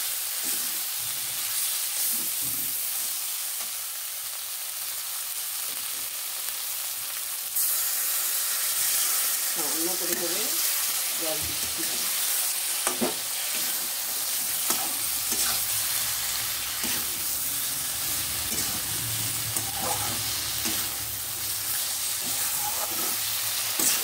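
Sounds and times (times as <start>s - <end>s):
food sizzling in oil: 0.0s - 24.0s
spatula scraping metal pan: 12.9s - 16.0s, 18.1s - 24.0s.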